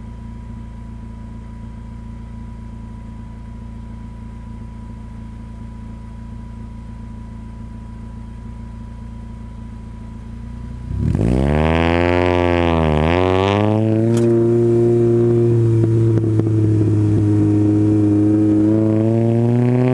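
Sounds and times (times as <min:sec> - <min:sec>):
car engine revving: 0:10.6 - 0:19.9.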